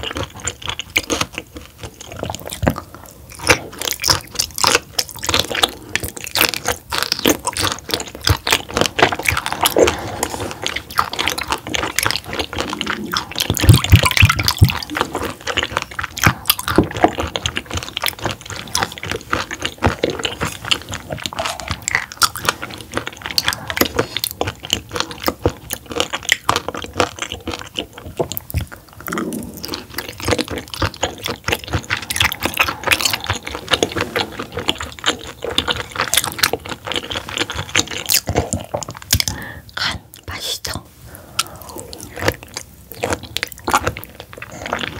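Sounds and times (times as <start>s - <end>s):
wet crunchy chewing: 0.0s - 40.4s, 41.1s - 44.9s.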